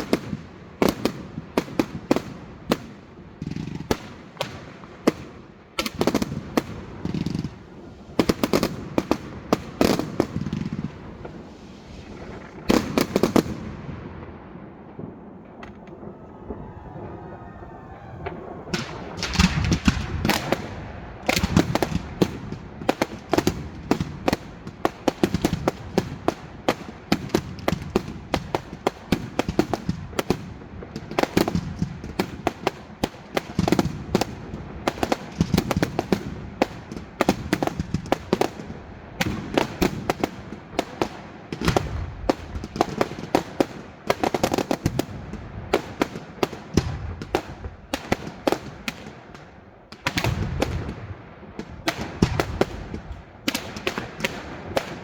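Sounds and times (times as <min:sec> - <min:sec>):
deep firework booms: 0:00.0 - 0:32.7, 0:41.5 - 0:55.0
fireworks crackling: 0:00.0 - 0:55.0.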